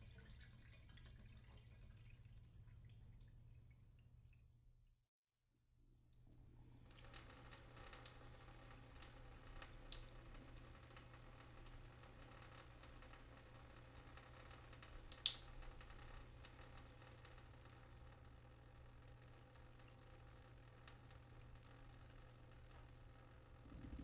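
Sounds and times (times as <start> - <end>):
faint steady hum: 6.0 - 24.0
water drops dripping: 6.9 - 10.2, 13.9 - 17.7.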